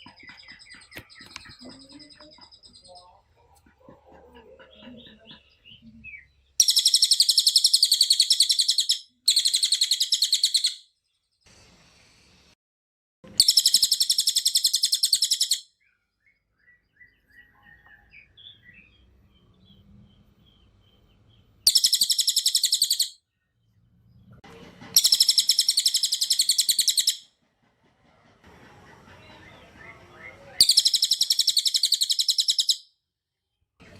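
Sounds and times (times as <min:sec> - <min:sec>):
songbird singing rapid high notes: 0:05.0 - 0:10.8, 0:13.4 - 0:16.0, 0:21.6 - 0:23.2, 0:25.0 - 0:27.2, 0:29.5 - 0:32.8.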